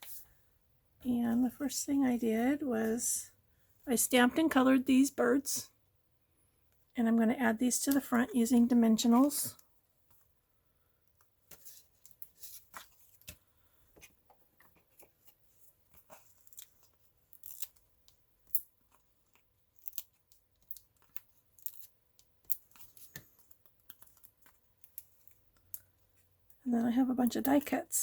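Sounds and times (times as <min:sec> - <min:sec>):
paper crinkling and clicks: 0:14.0 - 0:25.9.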